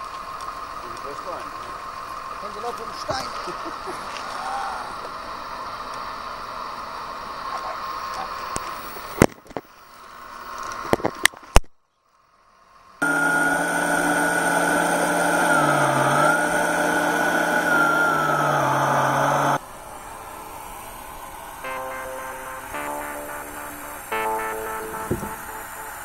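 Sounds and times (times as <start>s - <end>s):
faint model truck motor hum: 13.0s - 21.5s
hydraulic pump whine: 13.0s - 21.6s.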